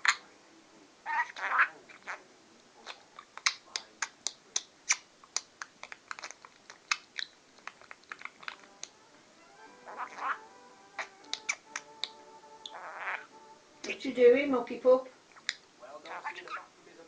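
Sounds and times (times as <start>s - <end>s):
budgerigar chatter: 1.1s - 2.2s, 9.7s - 13.3s, 15.3s - 16.8s
budgerigar clicking: 2.8s - 9.0s, 11.0s - 14.0s, 15.3s - 16.7s.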